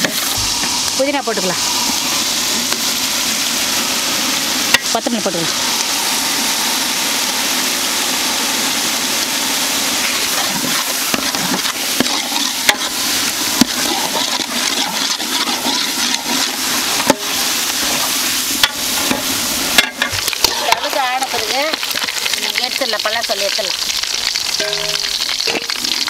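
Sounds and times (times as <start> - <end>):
food sizzling in hot oil: 0.0 - 26.0
metal spatula scraping pot: 10.0 - 22.8, 24.4 - 26.0.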